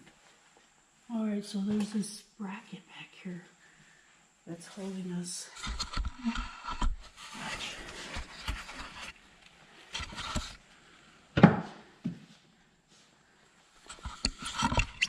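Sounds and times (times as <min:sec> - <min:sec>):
parts rubbing and scraping: 0:05.5 - 0:10.6, 0:13.8 - 0:15.0.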